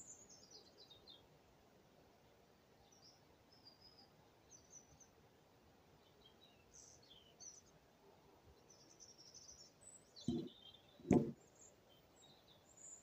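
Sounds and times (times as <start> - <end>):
birds chirping faintly: 5.9 - 13.0
dull thumps: 10.3 - 11.4.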